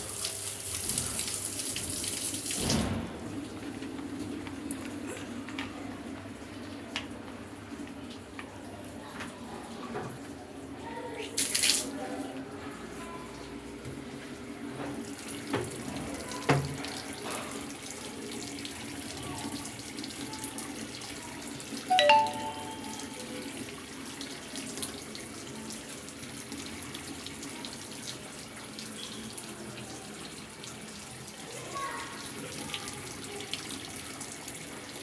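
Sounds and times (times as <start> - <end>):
water running into washing machine: 0.0 - 4.6, 13.4 - 21.8, 23.6 - 35.0.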